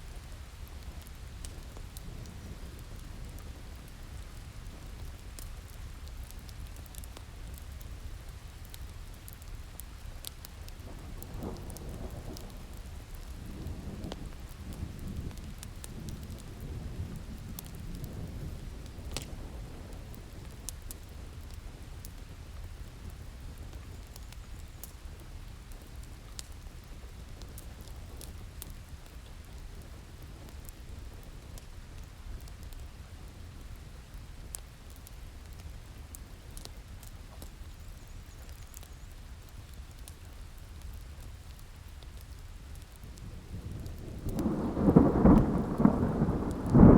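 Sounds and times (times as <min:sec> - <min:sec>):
steady rain: 0:00.0 - 0:46.9
wood fire crackling: 0:00.0 - 0:46.9
thunder rumbling: 0:43.5 - 0:46.9.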